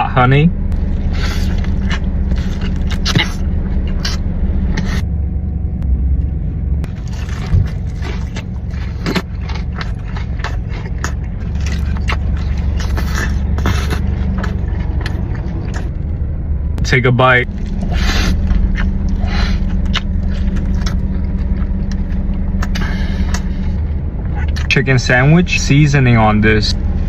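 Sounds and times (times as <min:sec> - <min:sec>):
steady low rumble: 0:00.0 - 0:27.0
chewing and biting: 0:00.7 - 0:05.0, 0:06.8 - 0:16.0, 0:17.5 - 0:24.8.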